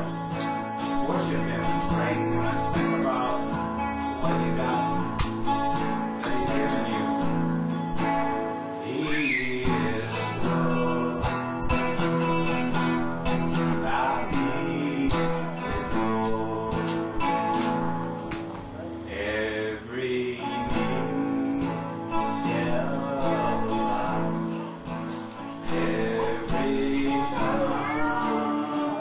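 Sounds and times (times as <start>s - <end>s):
person singing: 0.0s - 18.0s, 19.0s - 29.0s
acoustic guitar strumming: 0.0s - 29.0s.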